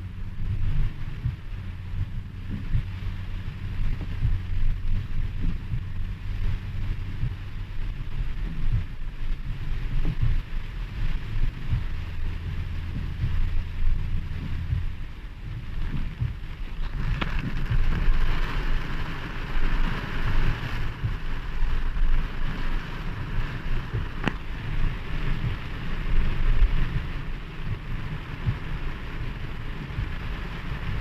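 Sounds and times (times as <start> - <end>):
low rumble: 0.0 - 31.0
rain falling: 0.0 - 31.0.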